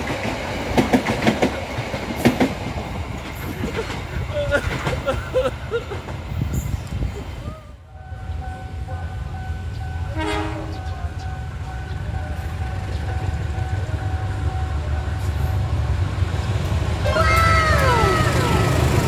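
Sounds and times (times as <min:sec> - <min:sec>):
diesel locomotive engine rumble: 0:00.0 - 0:19.0
train horn blast: 0:10.0 - 0:11.2.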